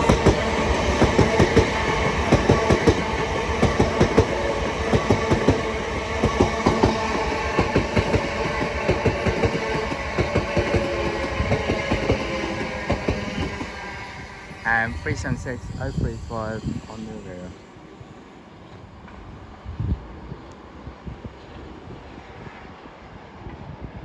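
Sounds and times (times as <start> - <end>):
train wheels clattering: 0.0 - 13.8
train running hum: 0.0 - 24.0.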